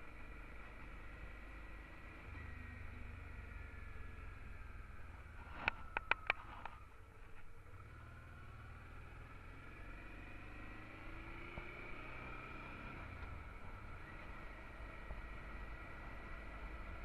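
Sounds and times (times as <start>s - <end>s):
faint whining tones: 0.0s - 9.9s, 13.0s - 17.0s
motorcycle engine cruising: 0.0s - 17.0s
road rumble: 0.0s - 17.0s.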